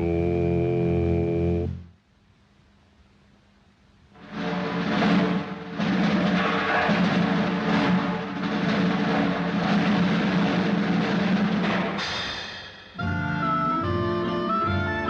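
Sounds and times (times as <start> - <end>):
pounding timpani and drums: 4.2 - 13.8
cartoon orchestral music: 13.0 - 15.0.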